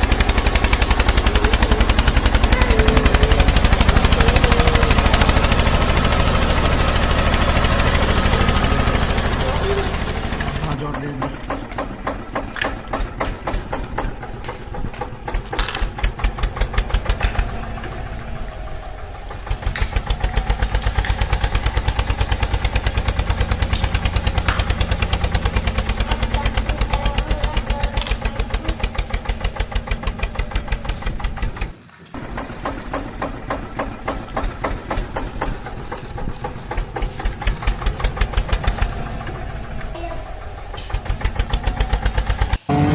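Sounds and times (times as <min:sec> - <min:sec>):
engine idling with thumping beat: 0:00.0 - 0:42.9.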